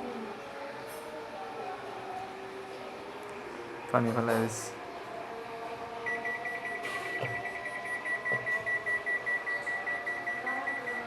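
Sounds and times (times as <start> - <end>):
washing machine buzzer beeping: 6.1 - 11.0.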